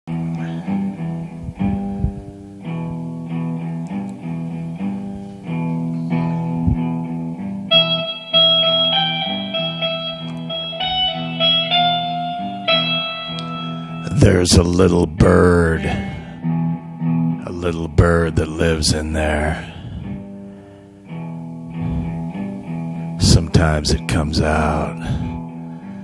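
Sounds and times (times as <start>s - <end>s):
guitar plucked chords: 0.1s - 26.0s.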